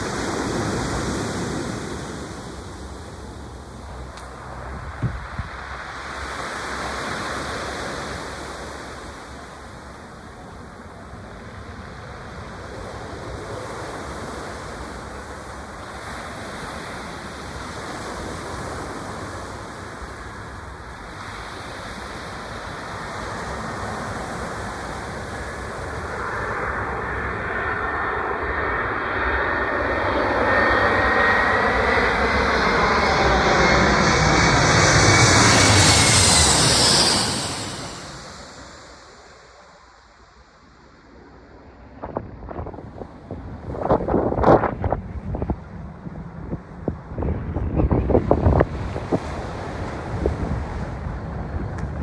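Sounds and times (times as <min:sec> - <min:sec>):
jet airliner engine noise: 0:00.0 - 0:52.0
thin rising whine: 0:25.8 - 0:40.1.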